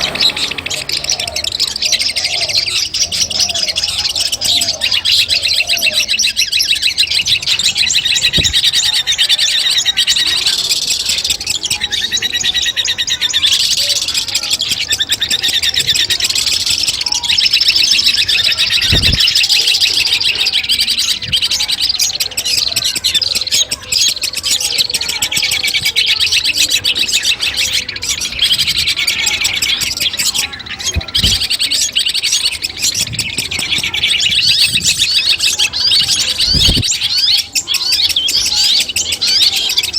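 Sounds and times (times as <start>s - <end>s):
shrike chattering song: 0.0s - 39.9s
dull thumps: 18.8s - 19.4s.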